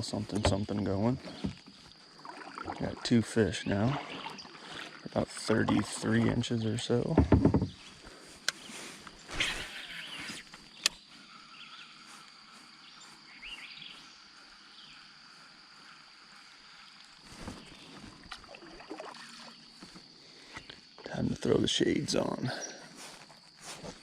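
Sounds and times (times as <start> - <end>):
faint rustling in a boat: 0.0 - 24.0
light knocks in a boat: 7.1 - 7.8
sharp click: 10.8 - 11.0.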